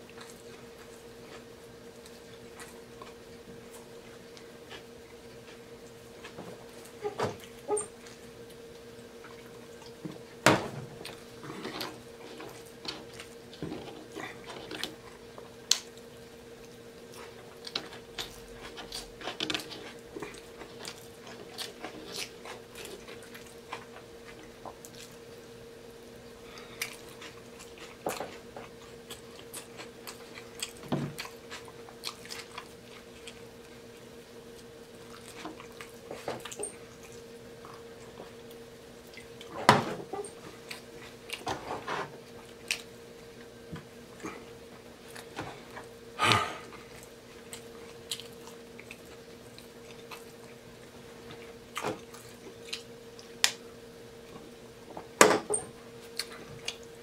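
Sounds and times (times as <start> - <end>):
chewing and lip-smacking: 0.0 - 10.2, 11.0 - 25.5, 26.2 - 41.5, 42.2 - 43.5, 46.6 - 53.6, 56.0 - 57.0
faint steady hum: 0.0 - 57.0.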